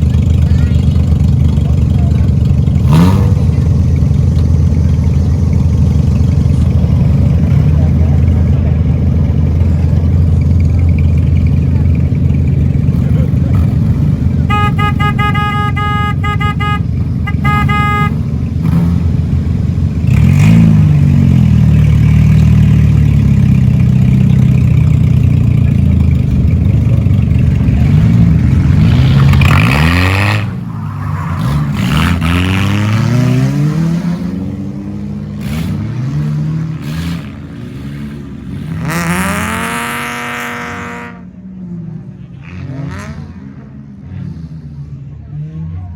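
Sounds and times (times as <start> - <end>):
race car engines revving: 0.0 - 45.9
horn blasts: 14.4 - 18.4, 39.6 - 41.3.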